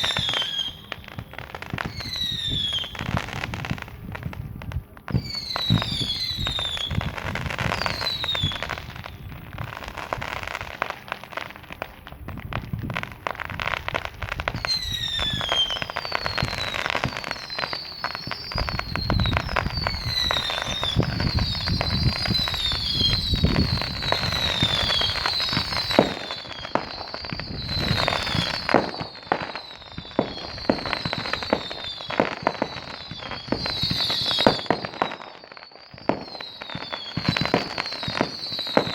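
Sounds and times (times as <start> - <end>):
fireworks crackling and banging: 0.0 - 38.9
whistling fireworks: 0.0 - 38.9.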